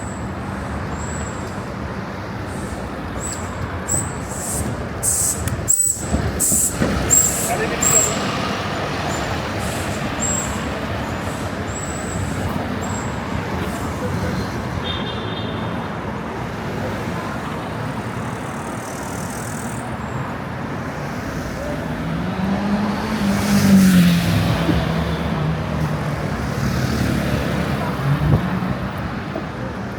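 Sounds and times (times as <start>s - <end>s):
passing cars: 0.0s - 29.9s.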